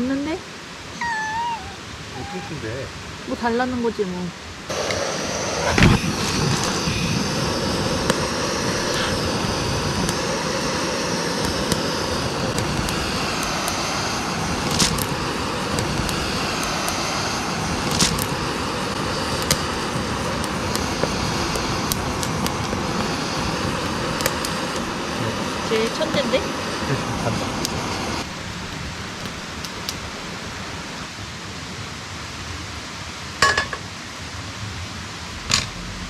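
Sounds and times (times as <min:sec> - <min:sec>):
stream flowing over rocks: 0:28.1 - 0:31.2.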